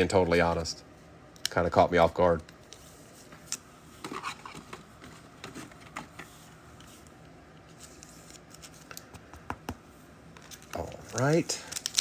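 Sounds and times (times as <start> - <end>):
trading cards being handled: 2.4 - 12.0.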